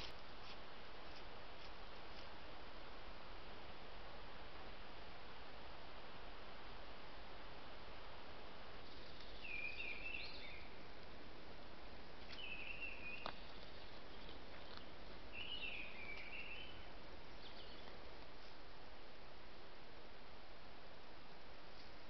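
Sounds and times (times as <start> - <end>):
microphone hiss: 0.0 - 22.0.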